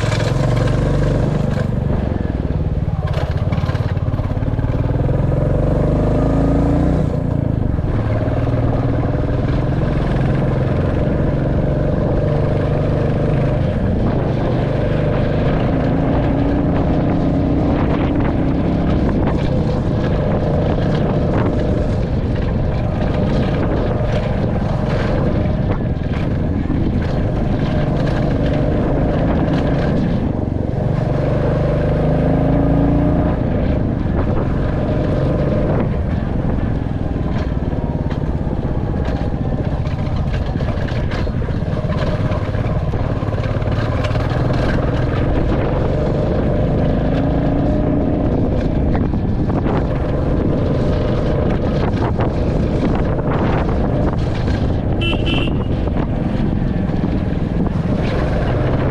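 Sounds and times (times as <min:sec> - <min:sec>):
motorcycle engine revving: 0:00.0 - 0:58.9
wind on microphone: 0:00.0 - 0:58.9.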